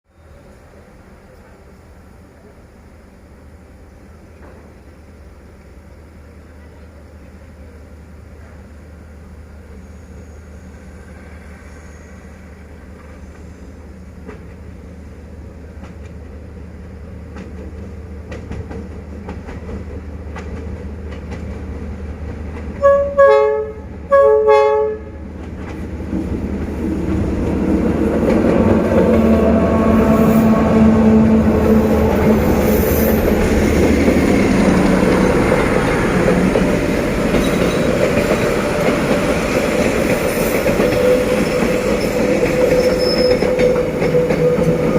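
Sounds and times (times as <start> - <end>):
locomotive rumble: 3.8 - 44.9
wheels clattering on rails: 17.3 - 22.9, 25.3 - 30.8, 31.6 - 44.9
train horn blasts: 22.8 - 25.3, 28.1 - 33.4.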